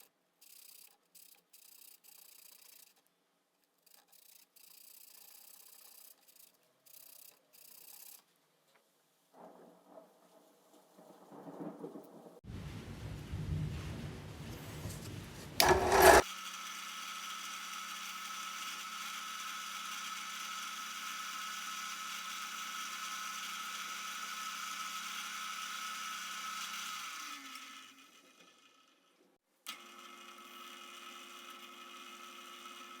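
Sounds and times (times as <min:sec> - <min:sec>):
power tool motor humming: 0:15.6 - 0:16.4.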